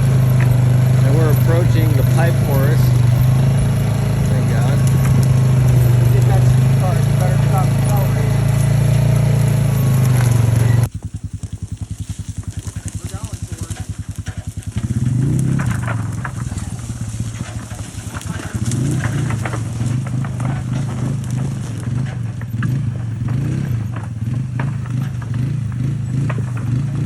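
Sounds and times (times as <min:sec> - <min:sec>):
vehicle engine revving: 0:00.0 - 0:27.0.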